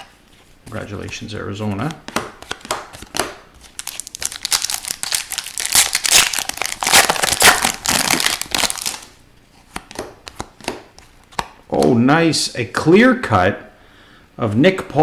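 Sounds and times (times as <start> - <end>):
foil wrapper crinkling and tearing: 3.6 - 9.1.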